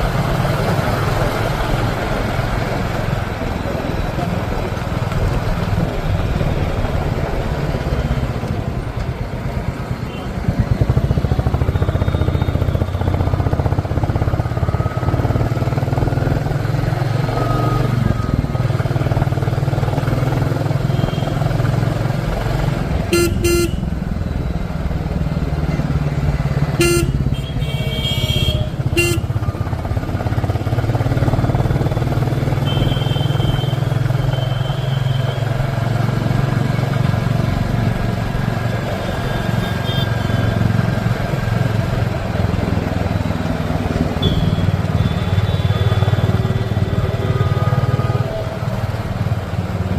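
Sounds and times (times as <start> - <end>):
motorcycle engine running: 0.0 - 49.9
vehicle horns honking: 23.0 - 24.0, 26.7 - 29.5, 32.6 - 35.4, 39.1 - 40.5, 44.2 - 48.6.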